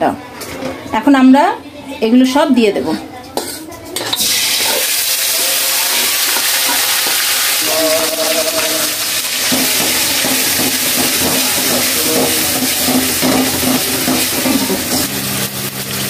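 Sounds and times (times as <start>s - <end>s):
metal spatula stirring: 2.9s - 15.2s
paste sizzling in hot oil: 4.0s - 16.0s.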